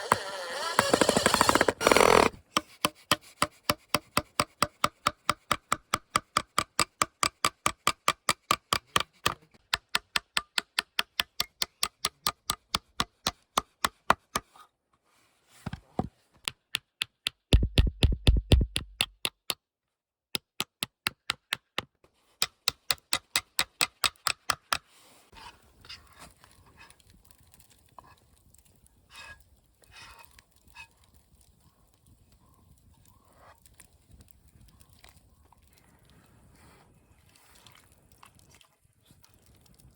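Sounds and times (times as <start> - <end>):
rhythmic chopping strikes: 17.1 - 19.4.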